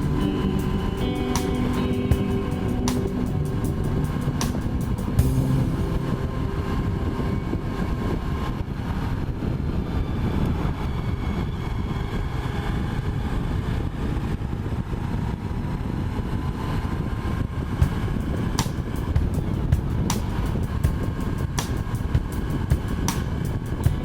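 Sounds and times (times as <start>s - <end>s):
motorcycle engine running: 0.0s - 7.7s, 17.8s - 24.0s.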